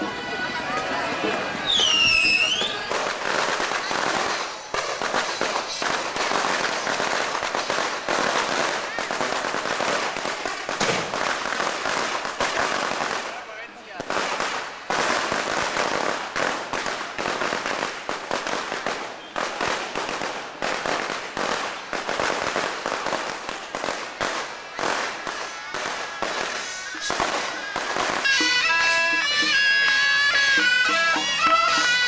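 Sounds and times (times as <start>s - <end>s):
firecrackers crackling: 0.0s - 32.0s
reed wind-instrument music: 26.7s - 32.0s.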